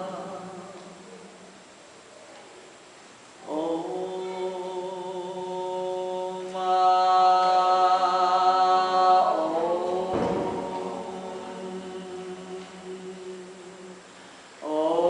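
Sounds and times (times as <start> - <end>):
group singing wordless chant: 0.0 - 1.6, 3.4 - 15.0.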